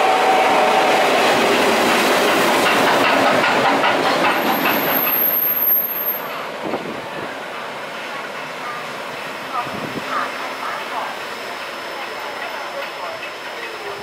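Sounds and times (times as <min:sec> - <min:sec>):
train rumble: 0:00.0 - 0:14.0
wheels clattering over rail joints: 0:01.4 - 0:06.9
thin high wheel squeal: 0:04.4 - 0:06.4.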